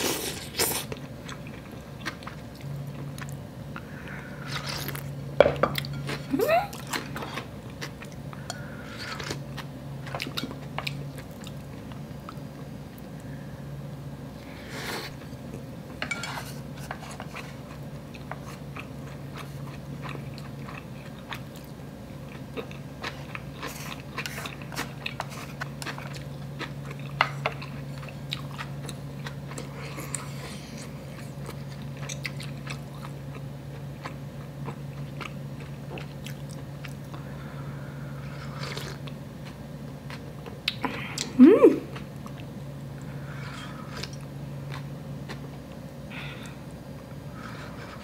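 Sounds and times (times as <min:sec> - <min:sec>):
steady low hum: 0:00.0 - 0:48.0
close chewing: 0:17.1 - 0:37.2.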